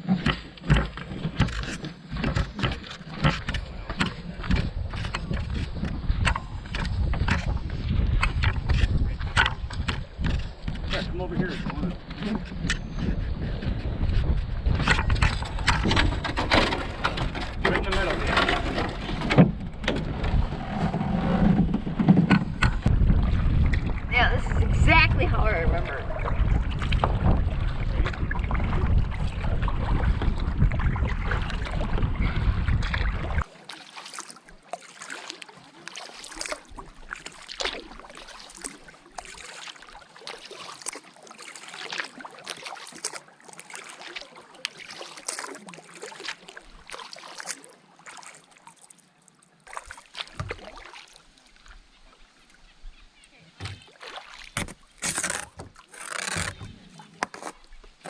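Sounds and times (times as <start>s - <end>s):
water noise: 0.0s - 58.0s
wind rumbling on microphone: 0.7s - 33.5s
light knocks and scrapes: 54.6s - 57.7s.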